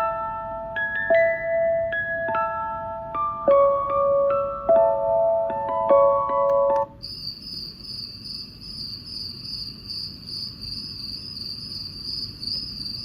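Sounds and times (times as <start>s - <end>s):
music-box lullaby tune: 0.0s - 7.0s
high cricket chirr: 6.8s - 13.0s.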